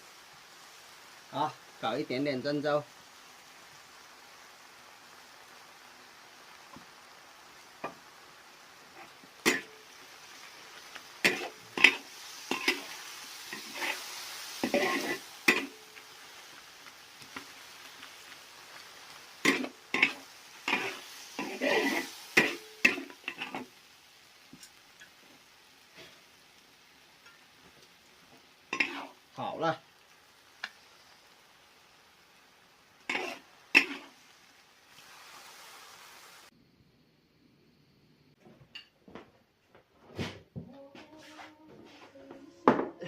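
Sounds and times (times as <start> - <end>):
food sizzling: 0.0 - 37.0, 40.7 - 43.0
spatula scraping a pan: 8.9 - 9.8, 11.2 - 15.8, 19.4 - 23.7, 28.7 - 29.2, 33.1 - 34.2.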